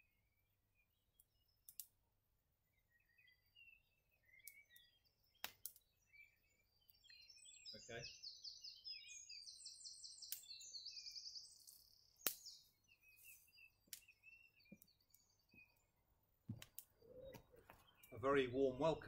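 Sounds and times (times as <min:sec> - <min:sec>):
wood fire crackling: 0:01.6 - 0:01.9, 0:04.4 - 0:06.0, 0:11.5 - 0:19.0
faint songbird trills: 0:02.6 - 0:19.0
soft footsteps: 0:16.4 - 0:17.9.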